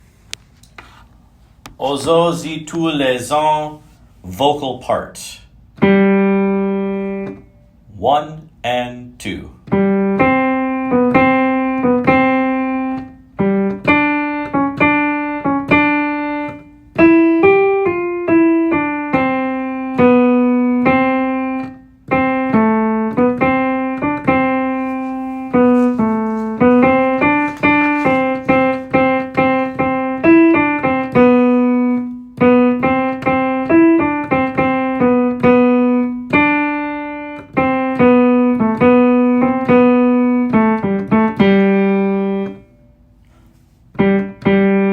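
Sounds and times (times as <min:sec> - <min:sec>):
keyboard single-note melody: 0:05.8 - 0:07.8, 0:09.6 - 0:42.7, 0:44.0 - 0:44.9.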